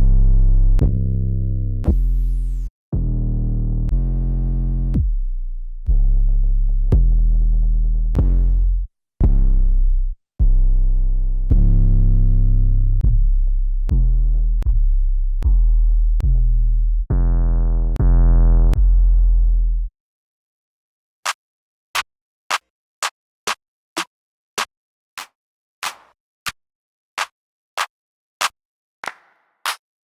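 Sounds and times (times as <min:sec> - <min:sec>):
distorted deep bass notes: 0:00.0 - 0:19.9.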